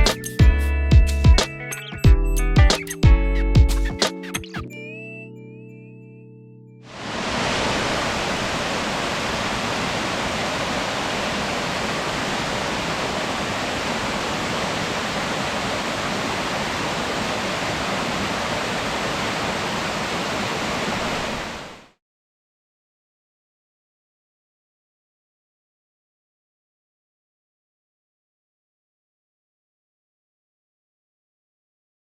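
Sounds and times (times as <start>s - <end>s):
waterfall rushing: 6.9s - 21.9s.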